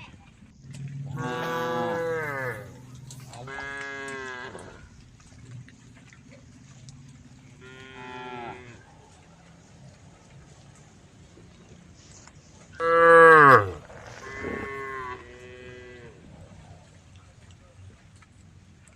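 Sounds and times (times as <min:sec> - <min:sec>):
cow mooing: 0:01.0 - 0:05.0, 0:07.6 - 0:08.8, 0:12.8 - 0:16.2.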